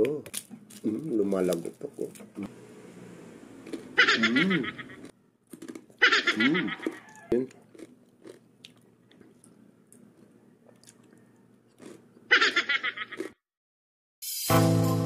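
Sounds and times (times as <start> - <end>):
loud crunching of crispy skin: 0.0 - 2.4, 4.8 - 12.3
person chewing food: 3.6 - 12.3, 13.0 - 13.4
music: 14.2 - 15.0.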